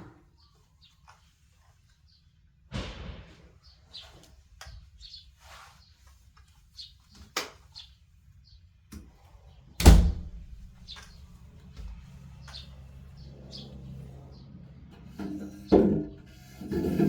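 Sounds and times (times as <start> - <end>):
heavy thump: 2.7 - 3.7
birds chirping: 10.3 - 14.6.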